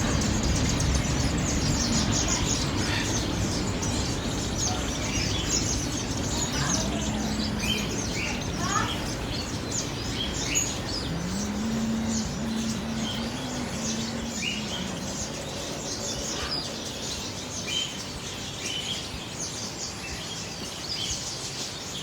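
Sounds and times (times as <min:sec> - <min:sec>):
low steady hum: 0:00.0 - 0:19.8
birds chirping: 0:00.0 - 0:22.0.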